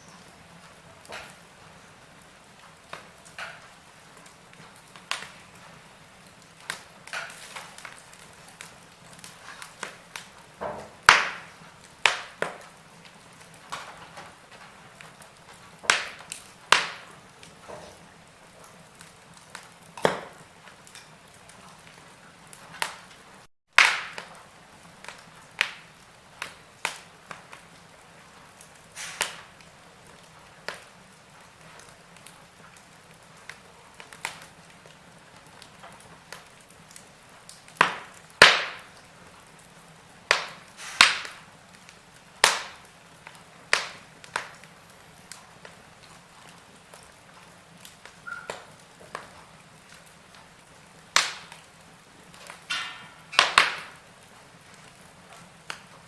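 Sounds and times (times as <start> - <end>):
faint steady hiss: 0.0 - 56.0
wood fire crackling: 0.0 - 56.0.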